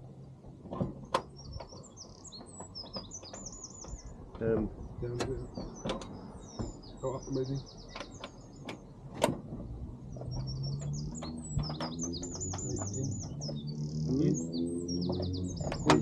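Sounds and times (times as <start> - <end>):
small birds chirping: 0.2 - 16.0.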